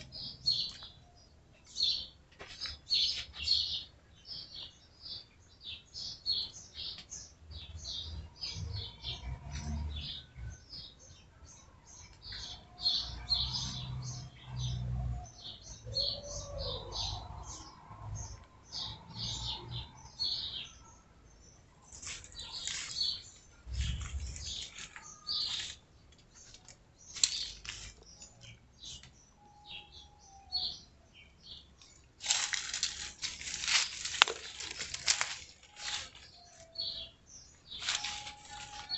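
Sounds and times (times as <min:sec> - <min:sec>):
small birds chirping: 0:00.0 - 0:38.9
low rumble: 0:23.5 - 0:25.0.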